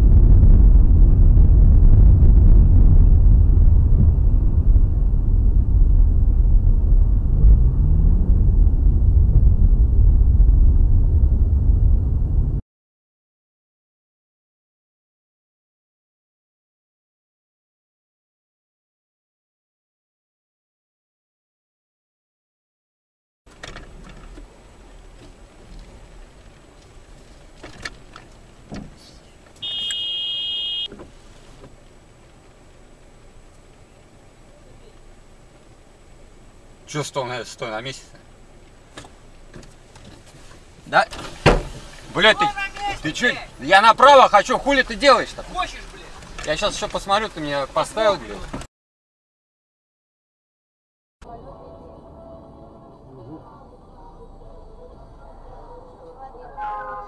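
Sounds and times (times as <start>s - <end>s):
car engine and road rumble: 0.0s - 12.6s, 23.5s - 48.7s, 51.2s - 57.0s
low vehicle noise: 0.0s - 12.6s, 23.5s - 48.7s, 51.2s - 57.0s.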